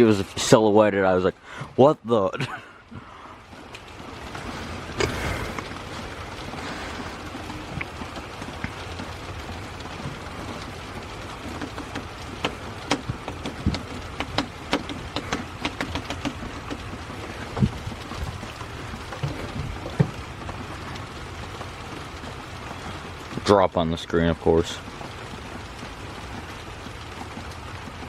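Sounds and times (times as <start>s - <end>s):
heavy rain pouring: 0.0s - 28.0s.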